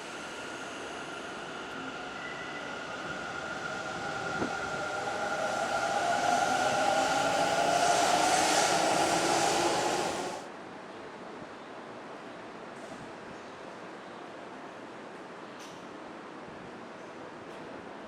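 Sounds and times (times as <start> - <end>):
electric train running past: 0.0 - 10.5.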